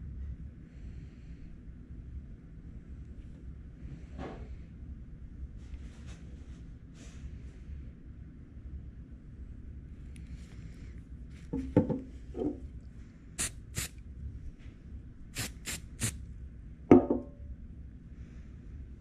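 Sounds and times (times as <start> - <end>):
dull knocks of bottles handled: 11.5 - 12.6, 16.9 - 17.3
spray bottle misting: 13.4 - 14.0, 15.4 - 16.2.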